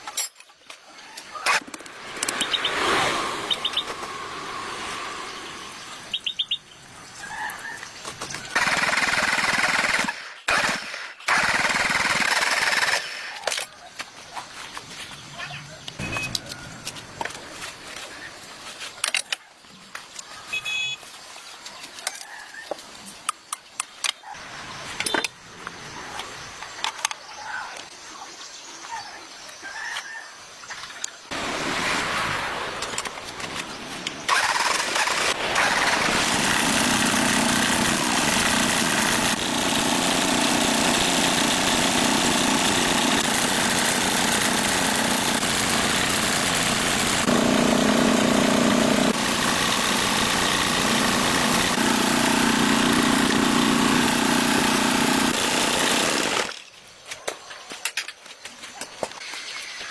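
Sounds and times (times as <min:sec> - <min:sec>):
engine starting and running: 0:08.5 - 0:13.6, 0:34.2 - 0:56.6.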